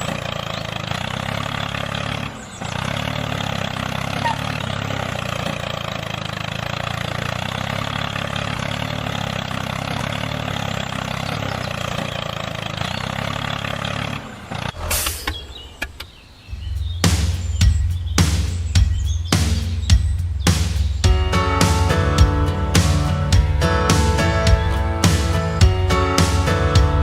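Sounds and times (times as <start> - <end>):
engine running: 0.0 - 27.0
music with heavy bass: 16.6 - 27.0.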